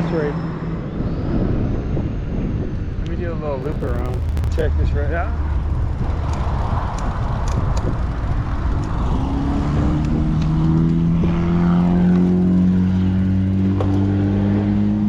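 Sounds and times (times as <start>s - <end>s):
steady rushing noise: 3.6s - 11.2s
vehicle engine humming: 3.6s - 13.8s.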